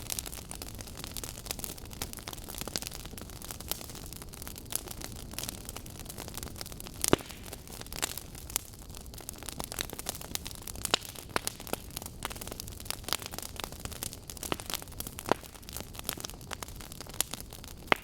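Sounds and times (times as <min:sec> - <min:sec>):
burning logs crackling: 0:00.0 - 0:18.0.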